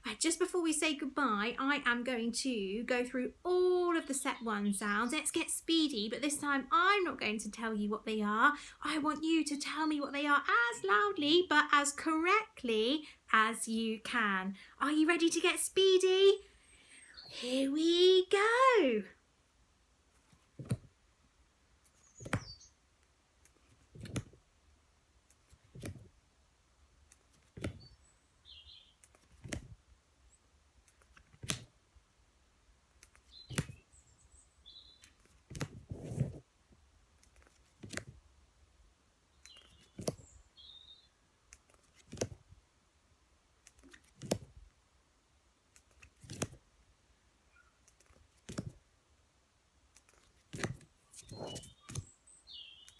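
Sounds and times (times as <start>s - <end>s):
paper flashcards flipping: 21.8s - 22.5s, 23.4s - 24.4s, 25.2s - 26.1s, 27.0s - 27.9s, 29.0s - 29.8s, 30.8s - 31.7s, 32.9s - 33.8s, 35.0s - 36.4s, 37.2s - 38.2s, 39.4s - 40.3s, 41.5s - 42.4s, 43.6s - 44.6s, 45.7s - 46.6s, 47.8s - 48.8s, 49.9s - 52.2s.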